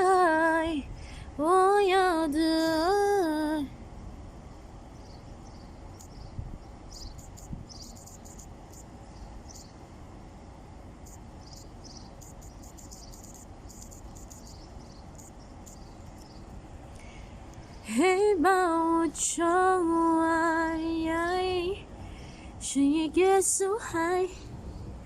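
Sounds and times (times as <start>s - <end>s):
insects chirping: 4.3s - 18.3s.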